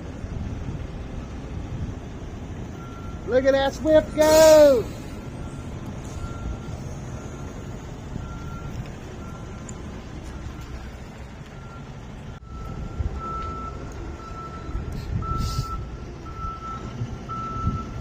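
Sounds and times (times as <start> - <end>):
diesel engine rumble: 0.0 - 18.0
truck backup alarm beeping: 0.0 - 18.0
brief hiss: 15.0 - 15.8.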